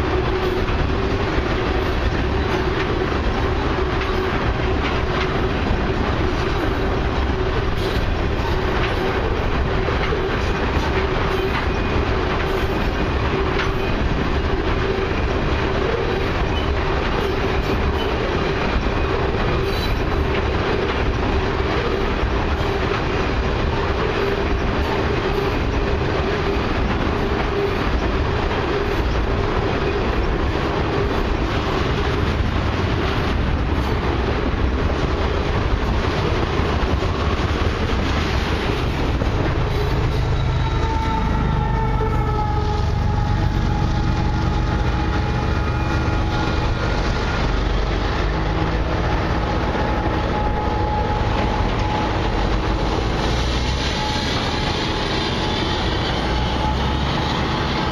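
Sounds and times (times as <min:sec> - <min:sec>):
train wheels rumbling on rail: 0:00.0 - 0:57.9.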